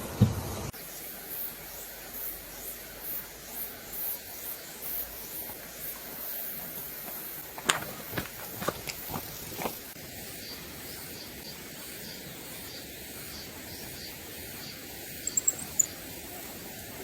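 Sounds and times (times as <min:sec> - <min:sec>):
faint high chirping: 0:14.0 - 0:16.6
sharp high ticks: 0:15.2 - 0:16.0.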